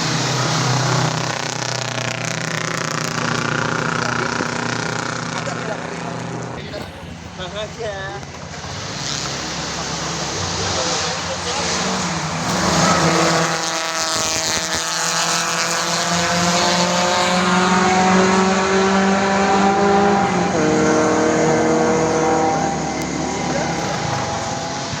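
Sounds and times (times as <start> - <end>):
racing car engine revving: 0.0 - 25.0.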